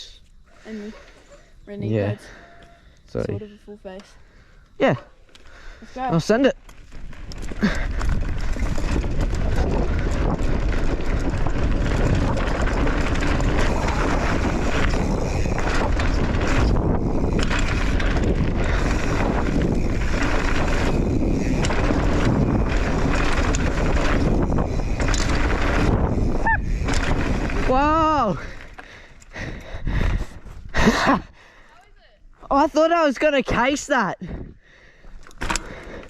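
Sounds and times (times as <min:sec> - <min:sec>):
bike tyres rolling on dirt: 0:04.0 - 0:31.7, 0:32.3 - 0:36.0
wind buffeting microphone: 0:05.5 - 0:31.4, 0:34.2 - 0:36.0.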